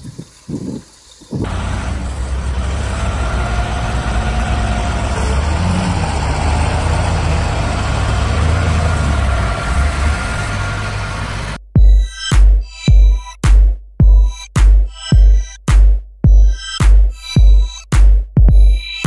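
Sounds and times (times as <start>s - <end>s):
road and wind noise: 0.0s - 11.6s
vehicle engine rumble: 0.0s - 11.6s.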